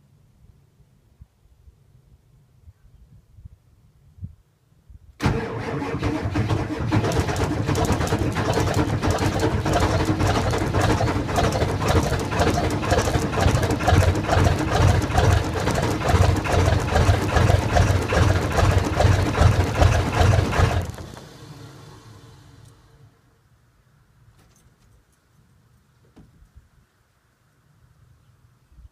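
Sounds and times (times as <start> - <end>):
diesel engine cranking and running: 5.2 - 23.2.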